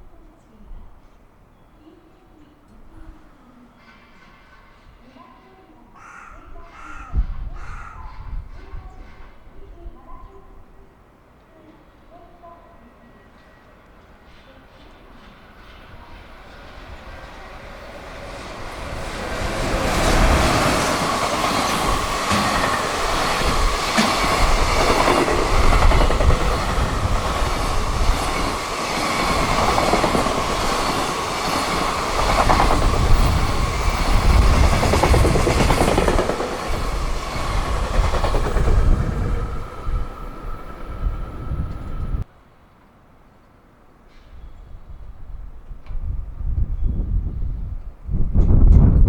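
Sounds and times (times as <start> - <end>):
freight train passing: 2.8 - 42.6
wheels clattering over rail joints: 17.2 - 40.2.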